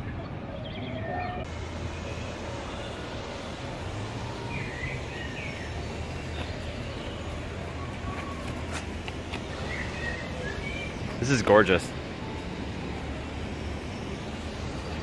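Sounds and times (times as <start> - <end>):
bird chirps: 9.5 - 11.2.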